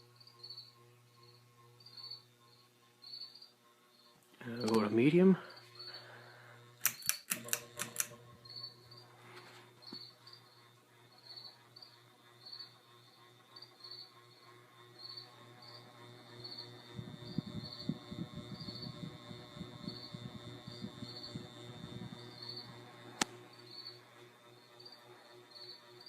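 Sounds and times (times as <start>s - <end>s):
ceiling fan motor hum: 0.0s - 26.0s
quick clicks: 6.8s - 8.2s.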